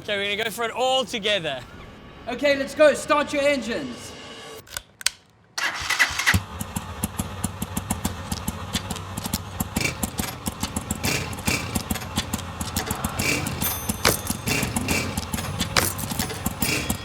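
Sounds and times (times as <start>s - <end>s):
motorbike engines idling: 5.6s - 17.0s
motorbike engines starting: 5.6s - 17.0s.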